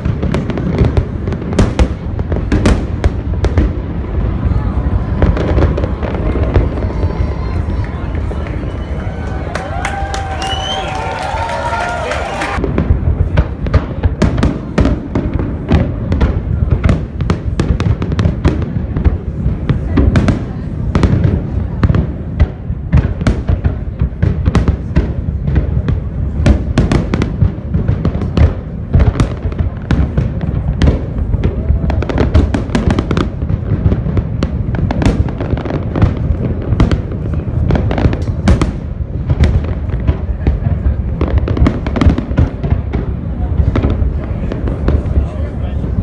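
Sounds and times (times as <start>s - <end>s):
low rumble of booms: 0.0s - 8.4s, 12.6s - 46.0s
fireworks sharp cracks: 0.0s - 46.0s.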